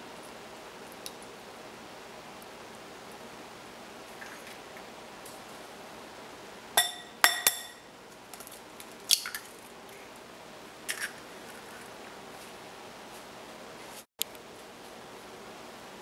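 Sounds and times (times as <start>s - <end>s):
utensil clinking against dish: 6.8s - 7.8s.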